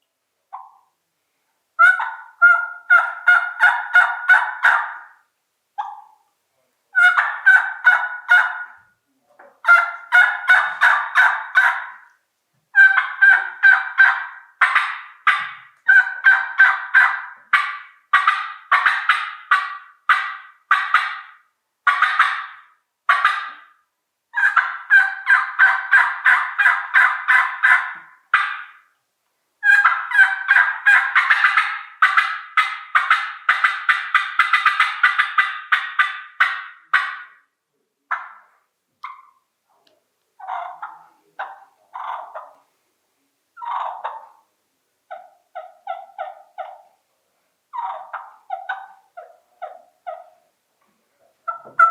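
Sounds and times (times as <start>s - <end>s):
turkey mouth call notes: 0.5s - 1.0s, 1.8s - 5.2s, 5.8s - 6.3s, 6.9s - 23.8s, 29.6s - 37.5s, 38.1s - 42.7s, 43.6s - 44.5s, 47.7s - 50.4s, 51.4s - 51.9s.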